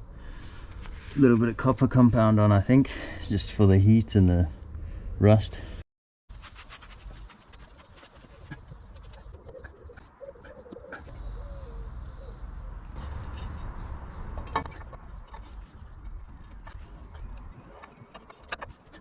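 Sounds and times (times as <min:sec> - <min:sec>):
pigeon cooing: 0:08.3 - 0:12.4.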